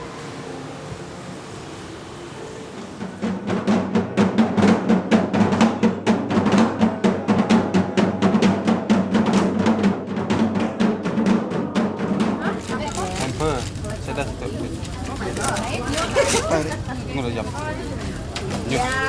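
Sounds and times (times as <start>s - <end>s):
rapid drumming on low drum: 3.0s - 14.8s.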